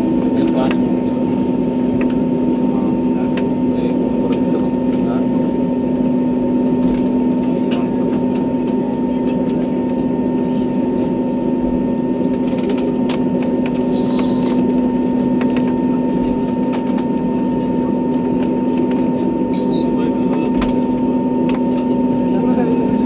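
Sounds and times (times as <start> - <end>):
airliner cabin drone: 0.0 - 23.0
humming tones: 13.8 - 14.8.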